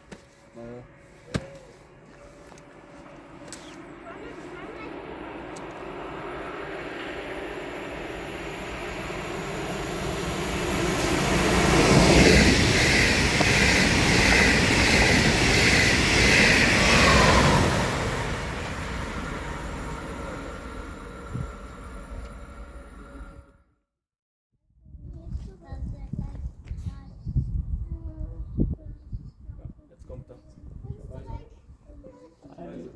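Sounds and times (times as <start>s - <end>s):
train passing at speed: 1.8s - 23.6s.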